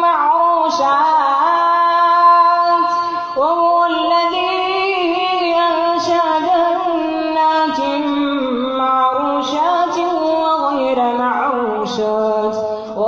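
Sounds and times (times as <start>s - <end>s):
boy chanting recitation: 0.0s - 13.0s.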